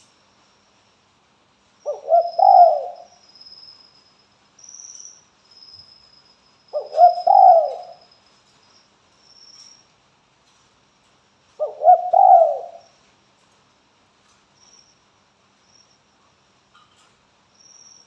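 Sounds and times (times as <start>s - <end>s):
dove cooing: 1.9s - 3.1s, 6.8s - 8.0s, 11.6s - 12.9s.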